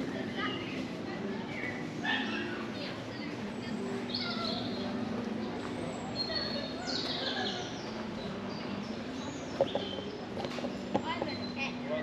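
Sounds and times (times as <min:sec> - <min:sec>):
wild birds singing: 0:06.0 - 0:11.8.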